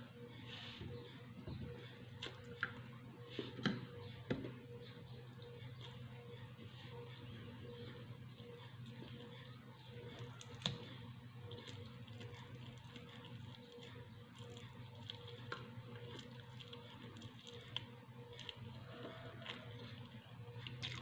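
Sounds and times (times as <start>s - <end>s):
steady low hum: 0.0s - 21.0s
person eating quietly: 8.6s - 21.0s.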